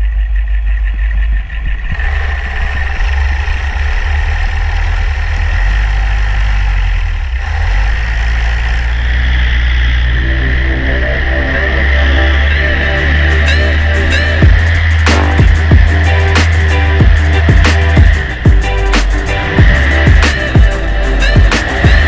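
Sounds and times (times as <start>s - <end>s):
paramotor engine running: 0.0s - 22.0s
wind rumbling on microphone: 0.6s - 4.6s.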